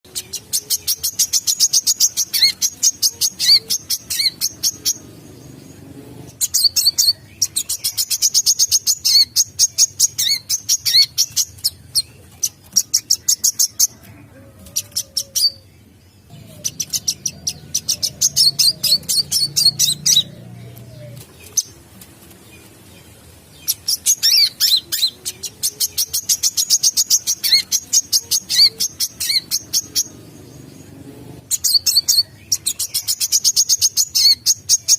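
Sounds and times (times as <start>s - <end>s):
sunbird chittering trills: 16.3s - 21.8s.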